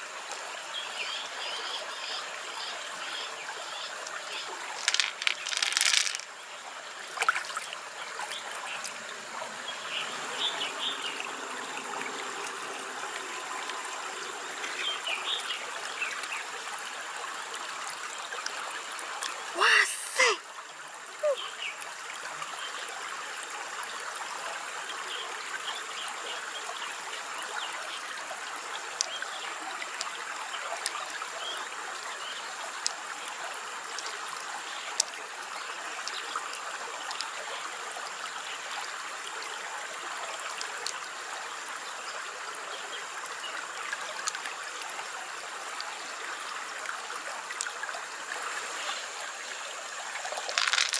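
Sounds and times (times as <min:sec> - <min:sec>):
water trickling: 0:02.3 - 0:19.6, 0:20.2 - 0:50.9
small splashes: 0:04.6 - 0:06.3, 0:07.1 - 0:09.0.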